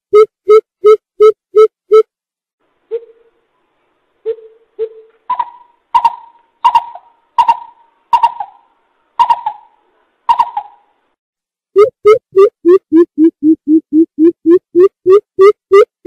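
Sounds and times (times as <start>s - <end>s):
coucal hooting: 4.3s - 10.9s.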